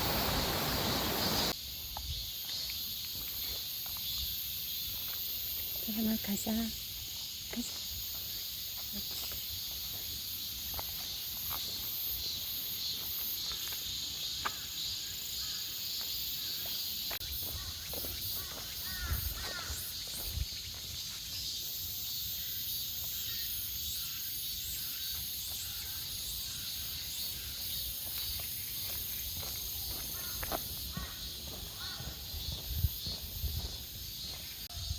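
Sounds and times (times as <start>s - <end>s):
bird chirps: 0.0s - 1.5s
footsteps on a path: 0.0s - 23.6s, 25.0s - 34.9s
cicadas and crickets chirring: 0.0s - 34.9s.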